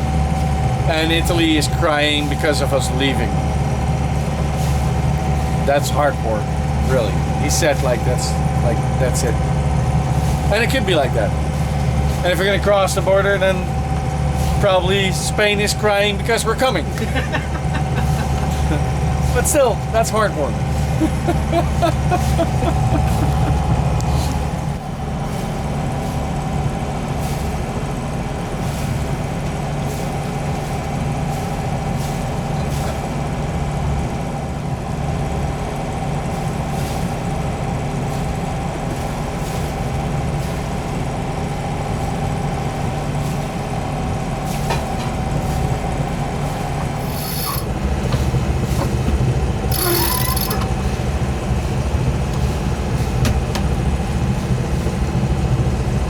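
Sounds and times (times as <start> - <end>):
boat engine droning: 0.0 - 56.0
faint steady whine: 49.7 - 50.9.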